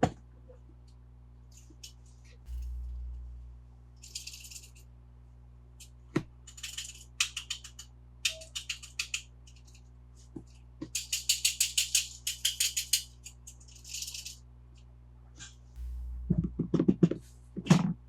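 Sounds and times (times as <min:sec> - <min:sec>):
toy cars clicking and rattling: 0:06.5 - 0:09.8, 0:11.0 - 0:14.4.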